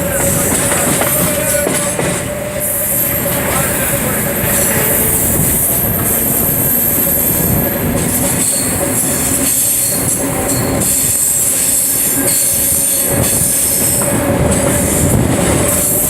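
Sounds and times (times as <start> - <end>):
train running whine: 0.0 - 16.0
train wheels rumbling on rail: 0.0 - 16.0.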